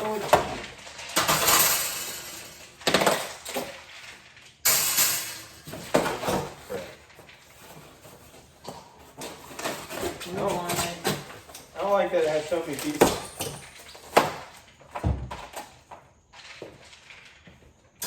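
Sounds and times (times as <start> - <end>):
packaging rustling: 5.6 - 17.6.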